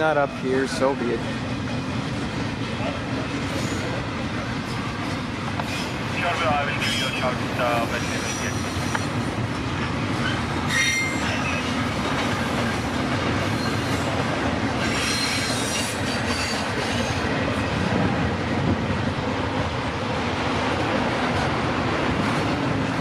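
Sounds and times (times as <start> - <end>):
freight train cars rolling: 0.0 - 23.0
high wheel squeals: 6.8 - 9.1, 10.2 - 11.8, 13.4 - 14.2, 14.8 - 17.2.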